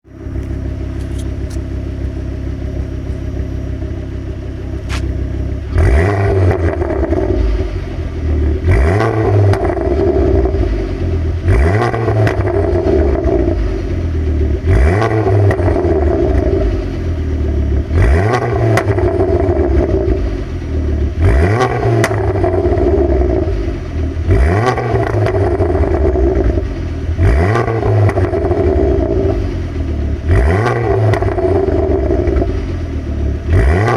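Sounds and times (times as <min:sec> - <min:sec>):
motorcycle engine revving: 0:00.2 - 0:33.9
exhaust pops and bangs: 0:21.2 - 0:23.5.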